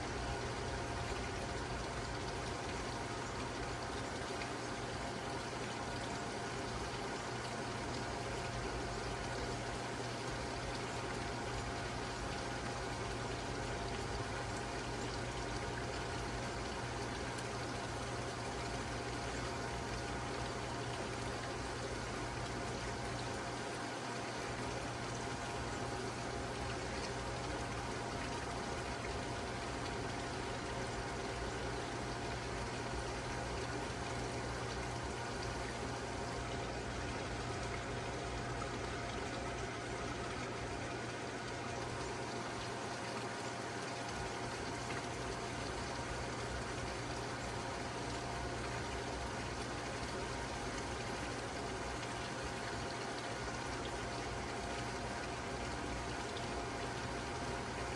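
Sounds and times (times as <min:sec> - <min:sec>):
low mechanical hum: 0:00.0 - 0:57.9
running water: 0:00.0 - 0:57.9.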